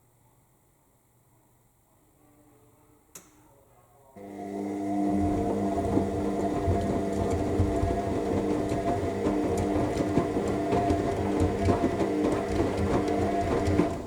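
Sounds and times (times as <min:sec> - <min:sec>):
washing machine motor humming: 0:04.2 - 0:14.0
wet load knocking in drum: 0:06.0 - 0:14.0.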